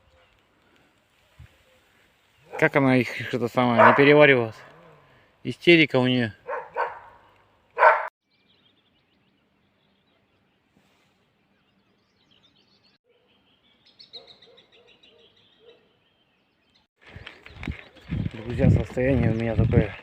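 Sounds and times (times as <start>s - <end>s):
dog barking: 3.7s - 4.7s, 6.4s - 8.1s, 14.2s - 16.0s
faint bird chirps: 8.3s - 16.9s.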